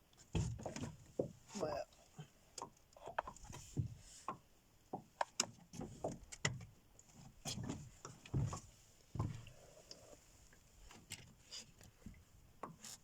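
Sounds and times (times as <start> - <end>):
light knocks and thumps: 0.2 - 1.6, 2.6 - 9.5.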